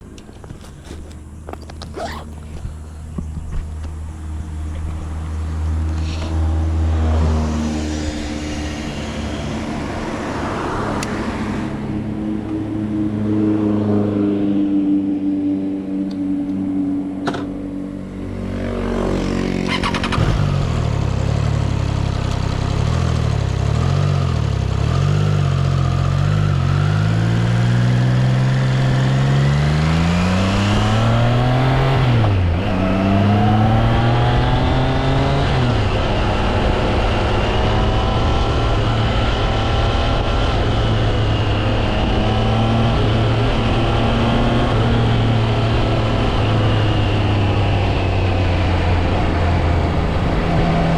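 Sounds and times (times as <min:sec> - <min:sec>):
motorcycle engine revving: 0:00.0 - 0:03.2, 0:18.2 - 0:50.9.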